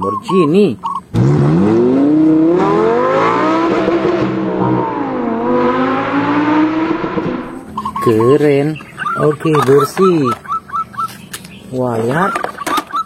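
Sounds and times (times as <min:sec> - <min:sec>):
race car engine revving: 0:01.1 - 0:08.0.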